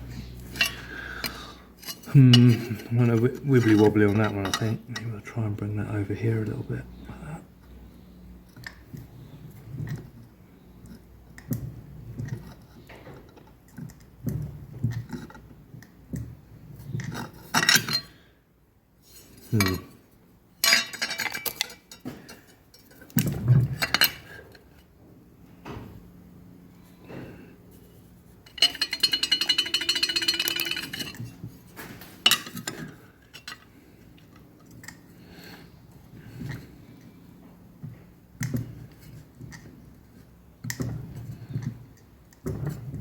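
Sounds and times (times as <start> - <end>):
metallic clanks of steel plate: 28.5 - 31.4
rapid metallic rattle: 28.5 - 31.4.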